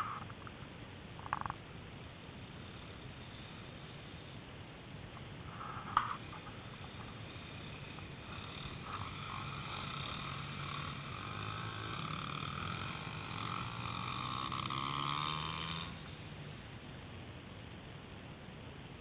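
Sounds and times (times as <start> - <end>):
pit bike engine passing: 5.6 - 17.0.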